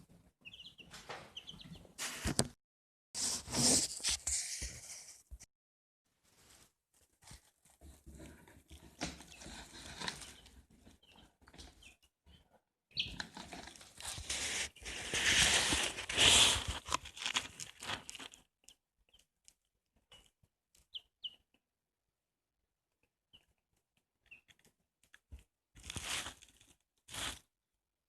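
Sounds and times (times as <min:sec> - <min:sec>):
chicks rustling and scuffling: 0:00.0 - 0:02.4, 0:03.2 - 0:05.1, 0:06.2 - 0:19.3, 0:24.2 - 0:27.5
chicks peeping: 0:00.4 - 0:02.0, 0:08.7 - 0:16.7, 0:20.1 - 0:21.5.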